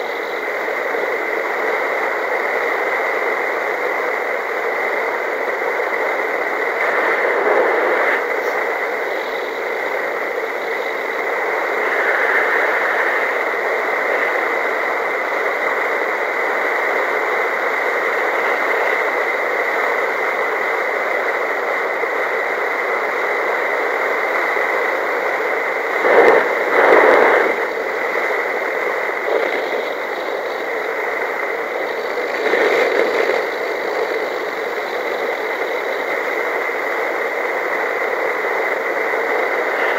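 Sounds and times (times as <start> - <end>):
airflow rushing over microphone: 5.1 - 15.7, 25.6 - 39.9.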